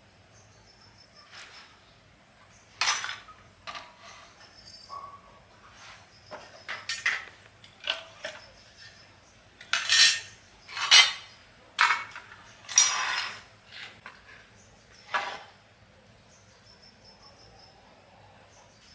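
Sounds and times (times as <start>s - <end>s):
metal tools clinking: 2.8s - 5.2s, 5.8s - 14.4s
scraping on metal: 3.7s - 15.6s.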